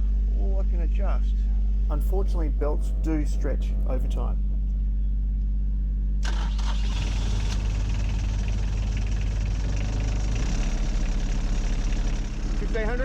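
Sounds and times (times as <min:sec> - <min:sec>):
diesel engine idling: 0:01.9 - 0:04.4, 0:06.3 - 0:13.0.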